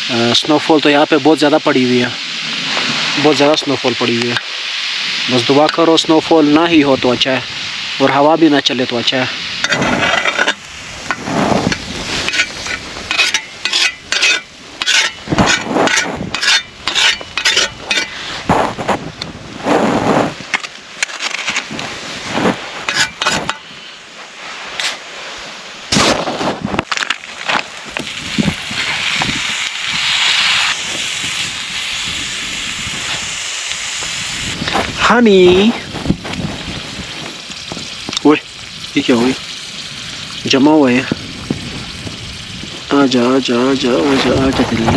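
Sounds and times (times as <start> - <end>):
food sizzling and crackling in pan: 0.9 - 44.9.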